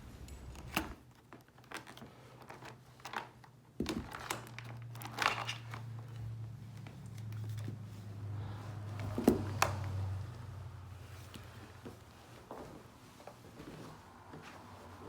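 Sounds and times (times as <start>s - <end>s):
faint low hum: 0.0s - 1.0s
plastic crinkling and clicking: 0.4s - 7.8s.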